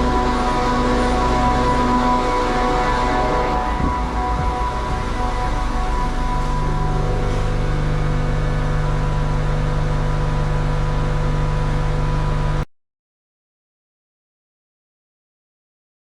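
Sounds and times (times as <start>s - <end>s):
truck engine running: 0.0s - 12.6s.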